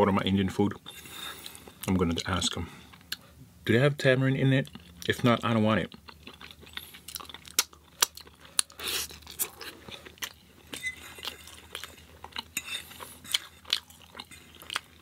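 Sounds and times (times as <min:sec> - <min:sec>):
person chewing crunchy food: 0:04.6 - 0:15.0.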